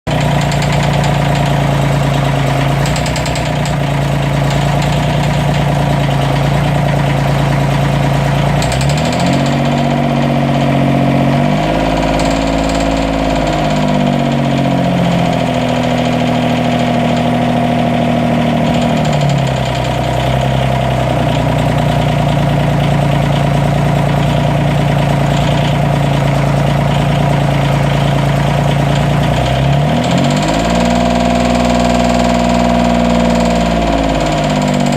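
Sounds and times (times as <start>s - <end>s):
diesel engine idling and revving: 0.0s - 34.9s
loud clicking: 0.1s - 10.7s, 11.3s - 34.9s
engine misfire: 0.1s - 34.9s.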